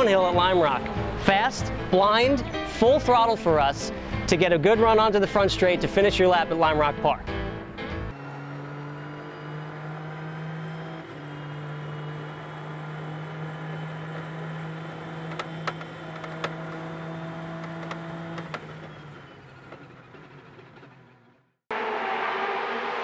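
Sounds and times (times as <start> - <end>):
race car engine running: 0.0 - 5.0, 7.5 - 23.0.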